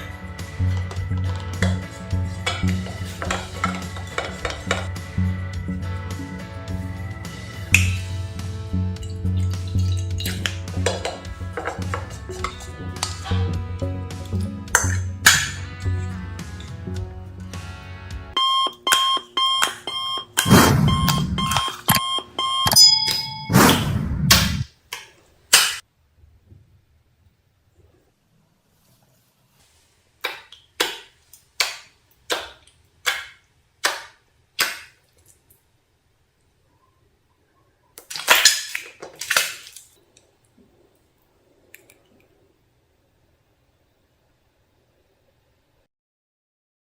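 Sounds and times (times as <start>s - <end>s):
background music: 0.0s - 23.7s
short electronic beeps: 18.4s - 23.7s
loud bursts of noise: 20.4s - 21.5s.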